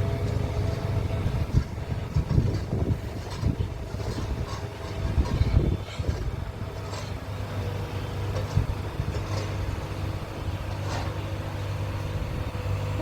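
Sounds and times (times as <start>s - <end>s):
wind rumbling on microphone: 0.7s - 7.0s, 12.0s - 13.0s.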